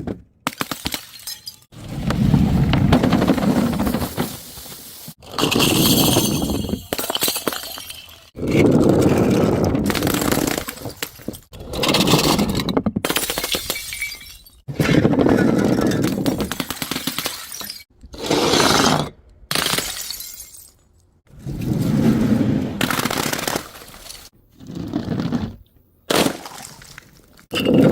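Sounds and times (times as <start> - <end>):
glass bottles smashing: 0.7 - 1.7, 5.4 - 8.3, 13.1 - 14.6, 16.6 - 17.9, 19.5 - 20.8.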